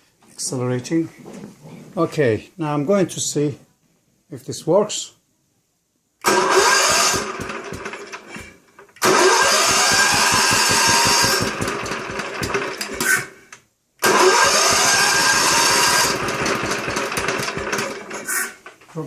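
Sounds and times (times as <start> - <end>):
starter motor cranking engine: 6.2 - 13.4, 14.0 - 18.8.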